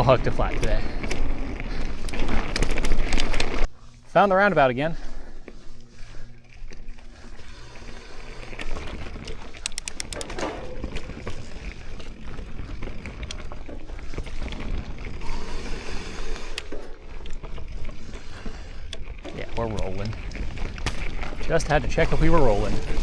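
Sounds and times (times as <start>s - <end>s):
bike rattling: 0.0s - 23.0s
tyres rumbling on dirt: 0.0s - 23.0s
run of clicks: 0.2s - 3.7s, 8.3s - 21.4s.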